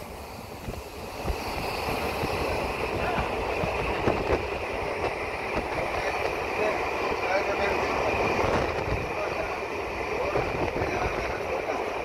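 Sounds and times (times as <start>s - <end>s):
wind rushing past: 0.0s - 7.1s
train wheels rumbling on rails: 0.0s - 12.0s.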